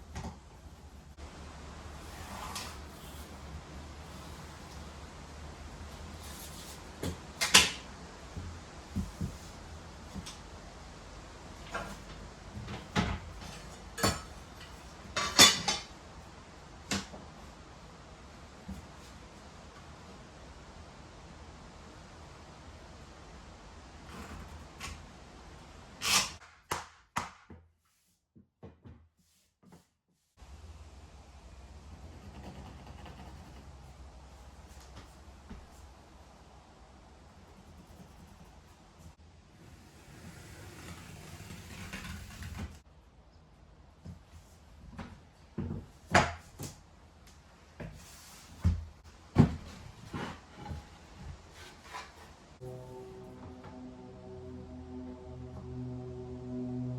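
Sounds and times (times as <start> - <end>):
music: 52.6 - 56.9.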